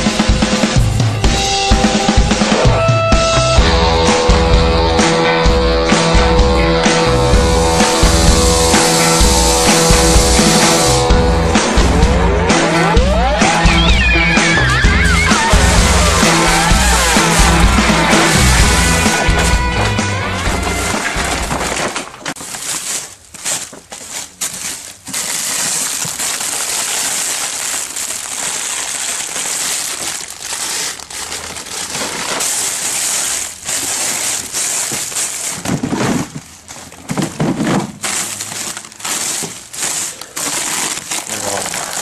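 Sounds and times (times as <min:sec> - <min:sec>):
background music: 0:00.0 - 0:21.6
plastic packaging rustling: 0:07.4 - 0:11.1, 0:13.6 - 0:42.0.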